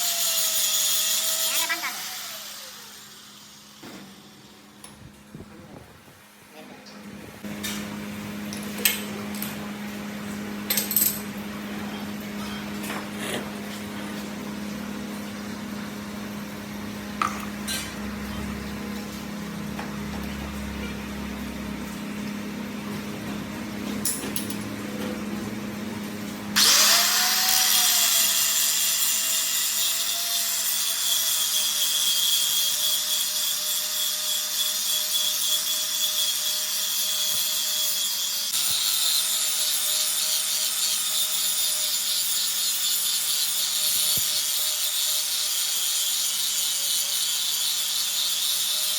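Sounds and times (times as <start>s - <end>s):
power tool running with hiss: 0.0s - 4.8s, 26.6s - 48.9s.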